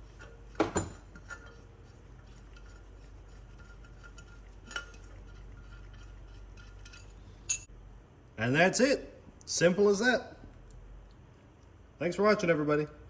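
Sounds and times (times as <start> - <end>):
low workshop hum: 0.0 - 13.0
faint metallic clink: 6.8 - 7.7.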